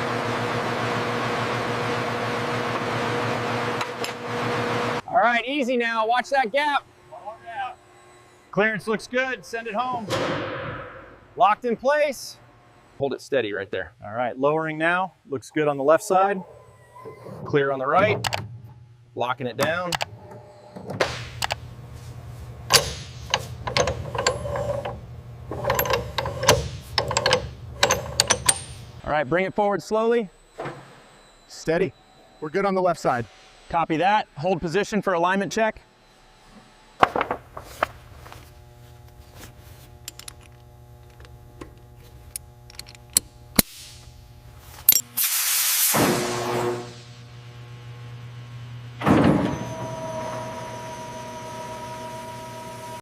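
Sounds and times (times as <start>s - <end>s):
low machine hum: 0.0s - 45.2s, 46.1s - 53.0s
metal clicks and ratchet clanks: 22.7s - 29.0s
brief hiss: 45.1s - 46.2s.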